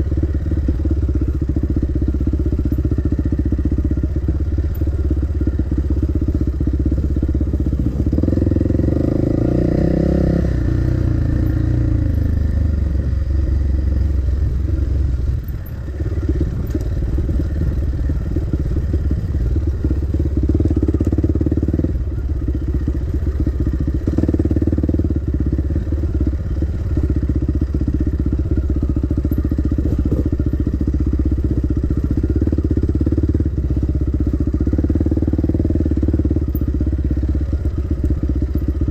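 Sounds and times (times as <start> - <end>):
dirt bike engine revving: 8.1 - 12.0.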